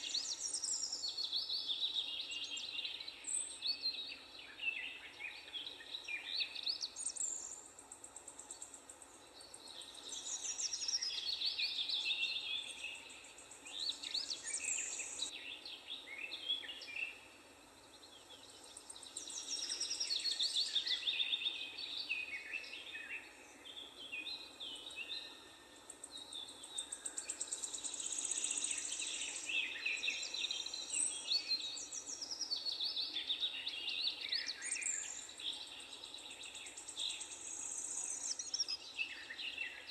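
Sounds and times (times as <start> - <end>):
birds chirping and trilling: 0.0 - 39.9
faint steady hiss: 0.0 - 39.9.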